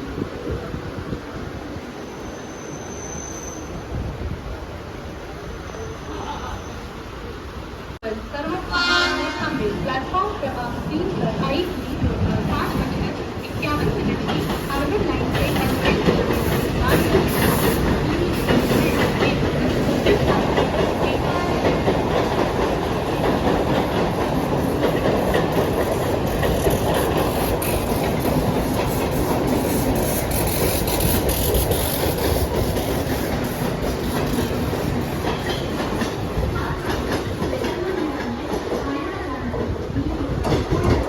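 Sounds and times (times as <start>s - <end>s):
train hiss: 11.9s - 20.0s
train wheels clattering over rail joints: 12.1s - 39.0s.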